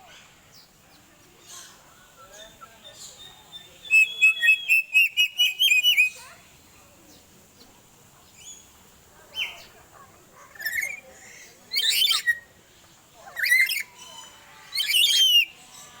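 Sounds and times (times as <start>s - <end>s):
bird whistled notes: 3.1s - 6.2s.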